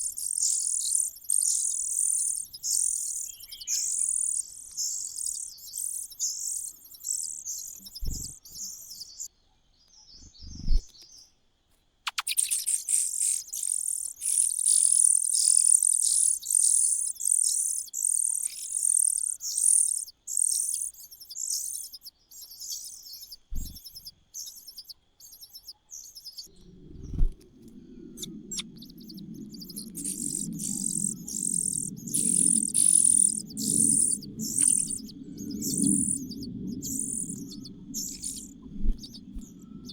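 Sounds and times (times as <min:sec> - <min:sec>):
nestlings begging chirps: 0:00.0 - 0:09.3, 0:12.1 - 0:27.2, 0:28.0 - 0:39.9
low thuds: 0:23.5 - 0:23.8
low rumbling noise: 0:26.5 - 0:39.9.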